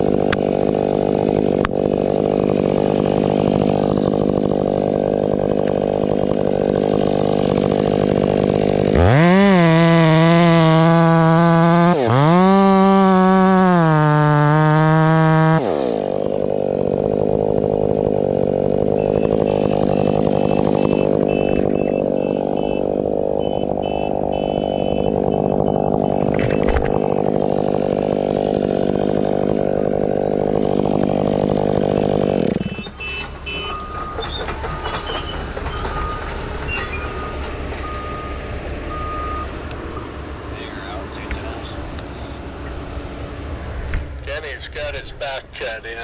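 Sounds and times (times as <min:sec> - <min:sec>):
chainsaw at full throttle: 0:00.0 - 0:33.7
vehicle engine drone: 0:00.0 - 0:46.0.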